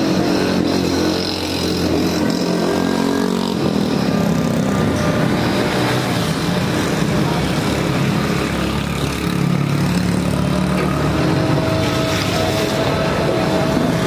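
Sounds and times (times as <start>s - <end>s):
motor traffic hum: 0.0s - 14.0s.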